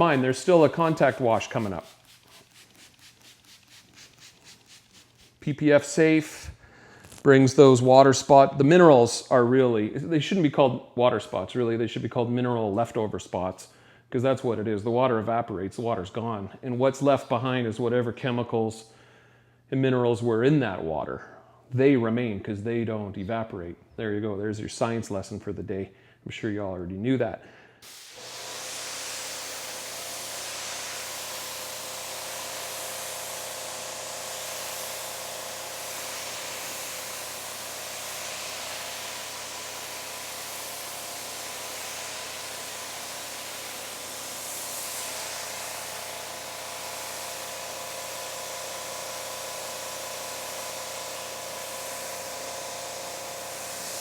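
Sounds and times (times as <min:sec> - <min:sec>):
pressure washer spraying water: 0:00.0 - 0:06.4, 0:27.8 - 0:54.0.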